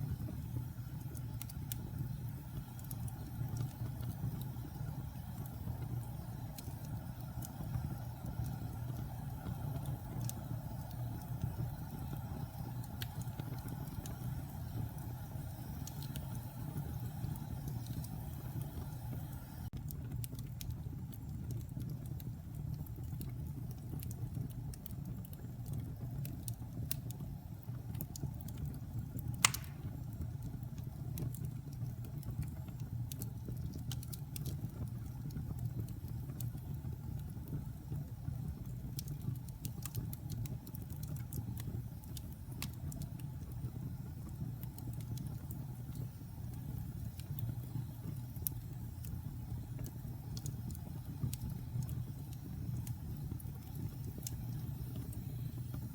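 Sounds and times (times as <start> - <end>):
wood fire crackling: 0.0 - 55.9
loud fire pop: 29.4 - 30.0.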